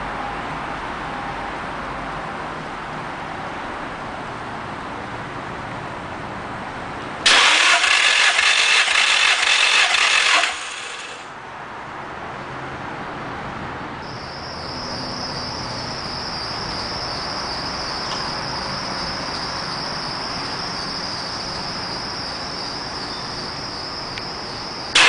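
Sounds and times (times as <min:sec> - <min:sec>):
engine cranking on starter: 0:07.3 - 0:11.3.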